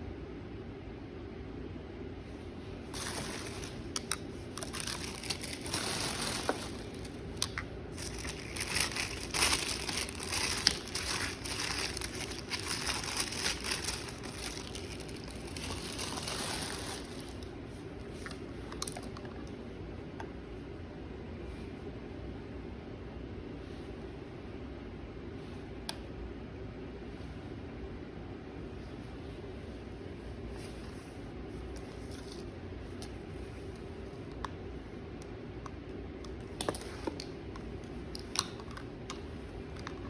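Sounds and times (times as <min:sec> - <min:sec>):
packaging crinkling and rustling: 0:02.9 - 0:19.5.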